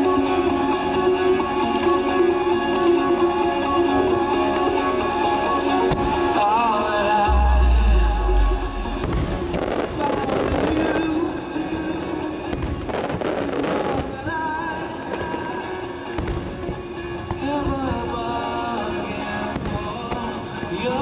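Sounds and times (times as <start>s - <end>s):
music playing: 0.0s - 21.0s
firework crackling: 6.0s - 21.0s.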